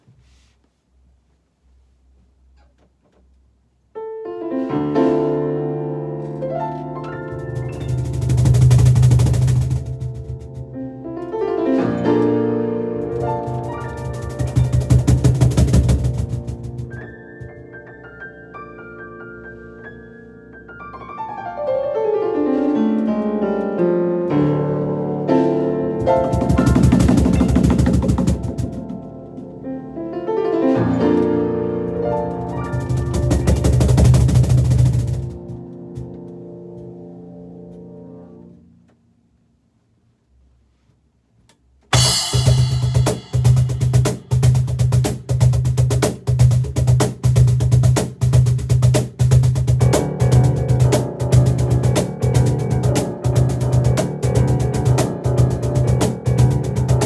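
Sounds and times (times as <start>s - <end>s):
fast piano piece: 4.3s - 38.5s, 42.0s - 57.0s
rapid percussion strikes: 7.2s - 10.7s, 13.1s - 17.6s, 26.0s - 29.2s, 32.1s - 35.6s, 41.9s - 57.0s.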